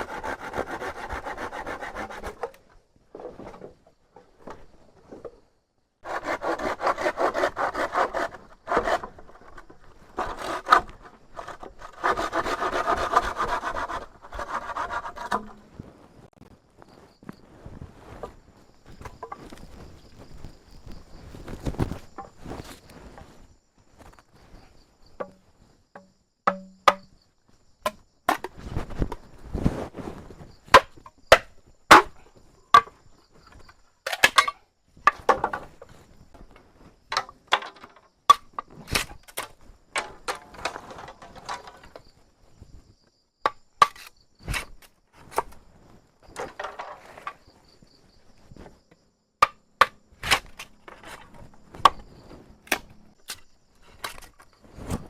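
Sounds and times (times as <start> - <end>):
rustling: 6.6 - 24.8, 28.5 - 31.0, 50.2 - 55.0
hand tool chopping strikes: 26.5 - 27.1
insects buzzing: 37.8 - 55.0.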